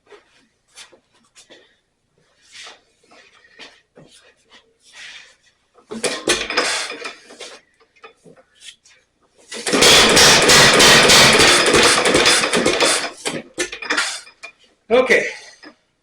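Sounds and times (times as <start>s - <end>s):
stationary engine running: 9.6s - 13.2s.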